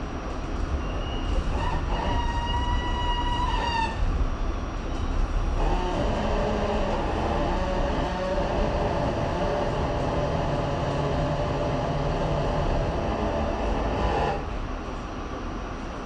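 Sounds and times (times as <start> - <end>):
subway train rumbling on rails: 0.0 - 16.0
humming tone: 5.6 - 14.6.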